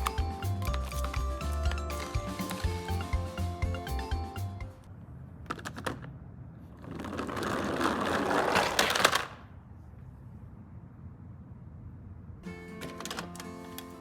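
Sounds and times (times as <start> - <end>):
plastic mechanism clicks: 12.8 - 14.0.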